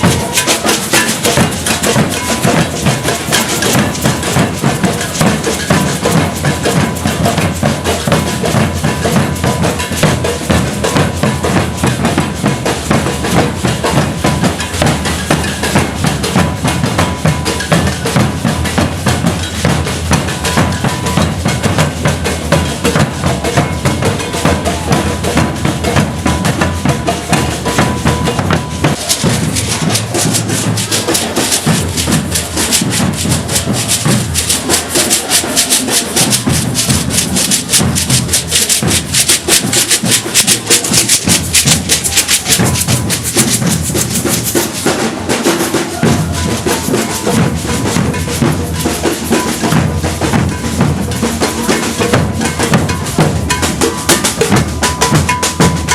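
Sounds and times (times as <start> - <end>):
shakers: 0.0 - 55.9
snare drums: 0.0 - 55.9
bass drums: 1.1 - 35.2, 36.1 - 44.7.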